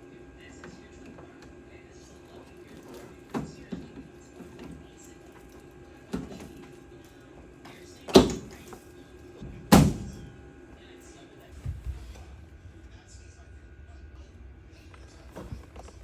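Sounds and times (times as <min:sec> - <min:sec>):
heavy thumps of truck door: 0:08.1 - 0:08.7, 0:09.4 - 0:10.3.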